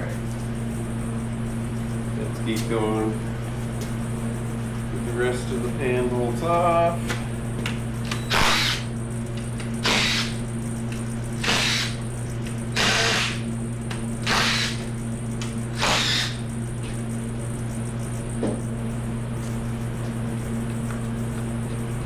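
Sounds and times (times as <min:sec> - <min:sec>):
steady low hum: 0:00.0 - 0:22.0
ratchet bursts: 0:08.0 - 0:09.0, 0:09.7 - 0:10.5, 0:11.4 - 0:12.1, 0:12.7 - 0:13.6, 0:14.2 - 0:16.5.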